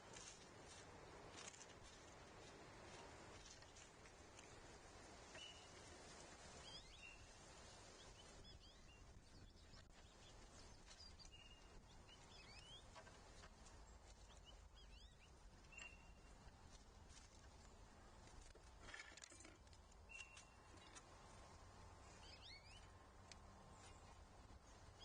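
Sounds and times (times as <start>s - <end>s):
bird chirps: 5.4s - 5.7s, 6.6s - 7.3s, 8.0s - 13.5s, 14.3s - 16.3s, 20.1s - 20.9s, 22.2s - 23.0s.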